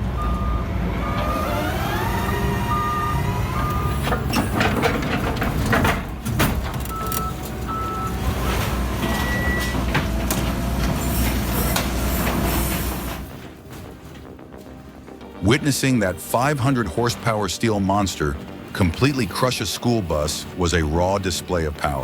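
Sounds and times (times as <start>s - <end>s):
heavy truck engines rumbling: 0.0s - 22.0s
short electronic beeps: 2.6s - 4.0s.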